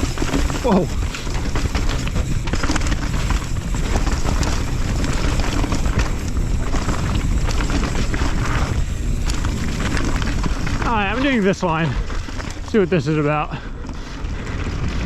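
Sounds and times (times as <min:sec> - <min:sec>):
bike knocks and rattles: 0:00.0 - 0:15.0
tyres rolling over dirt and rock: 0:00.0 - 0:15.0.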